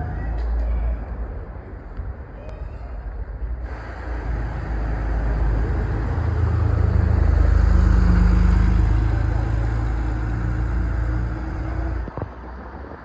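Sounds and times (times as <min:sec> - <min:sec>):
car engine driving past: 0:03.6 - 0:12.5.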